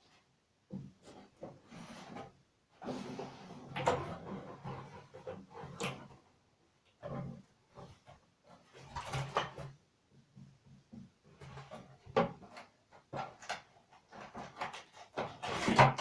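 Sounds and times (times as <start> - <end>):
objects knocking and rustling: 6.9 - 16.0.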